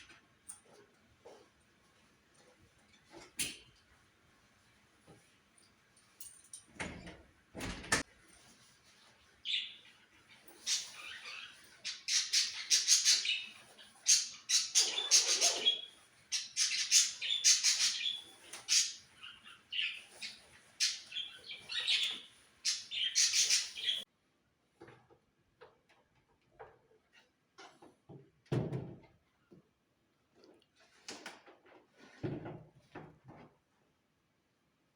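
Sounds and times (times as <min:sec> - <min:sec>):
birds chirping: 0:09.4 - 0:24.0.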